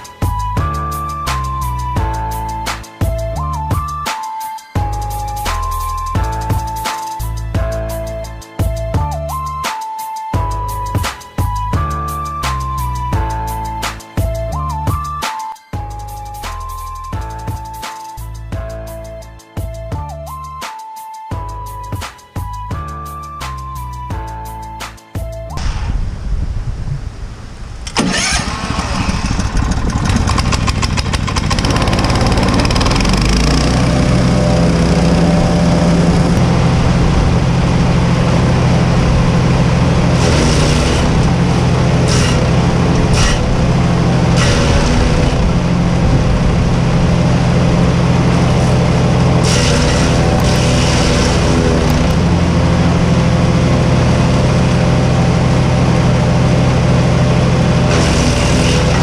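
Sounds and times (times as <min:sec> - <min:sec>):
wood chipper engine running: 0:27.8 - 0:59.0.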